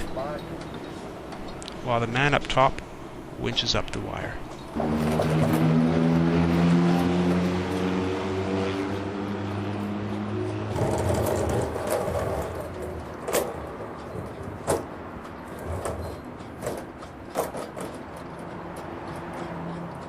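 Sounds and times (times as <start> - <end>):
sharp knocks and clatter: 4.5 - 7.9, 9.5 - 20.0.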